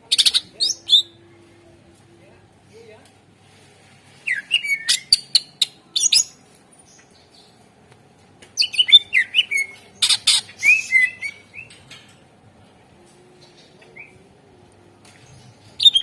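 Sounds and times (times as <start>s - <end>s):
bird singing whistles: 8.6s - 11.7s.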